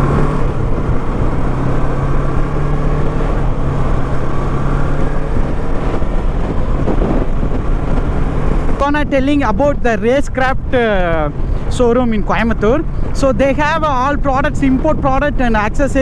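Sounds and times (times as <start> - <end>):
motorcycle engine running: 0.0 - 9.1
road noise: 0.0 - 16.0.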